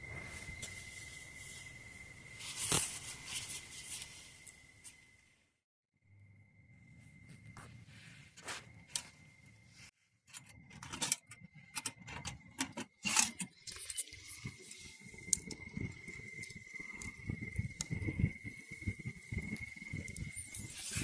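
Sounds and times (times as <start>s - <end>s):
rustling: 2.4s - 5.0s.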